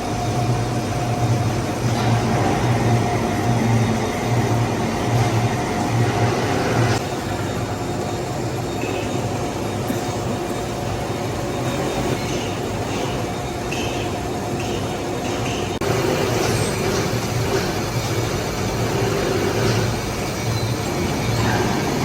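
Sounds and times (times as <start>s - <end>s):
metal lathe humming: 0.0s - 14.4s, 15.2s - 22.0s.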